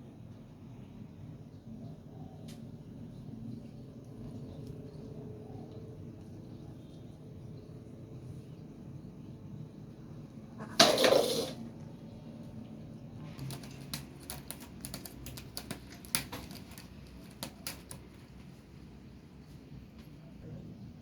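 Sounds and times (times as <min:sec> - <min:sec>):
loud clatter: 0:10.6 - 0:11.6
small hard objects clicking: 0:13.4 - 0:18.3.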